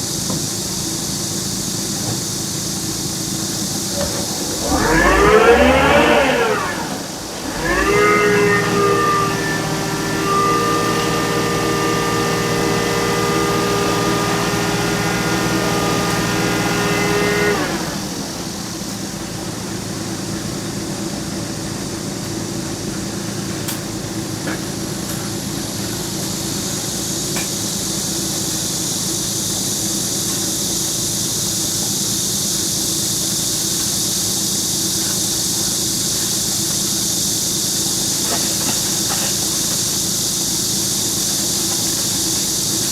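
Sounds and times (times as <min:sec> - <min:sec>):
hiss: 0:00.0 - 0:42.9
vehicle engine revving: 0:03.7 - 0:19.2.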